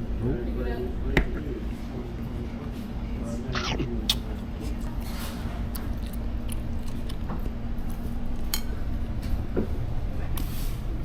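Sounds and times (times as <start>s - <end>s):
person chewing: 3.6s - 3.9s
steady low hum: 3.6s - 4.8s.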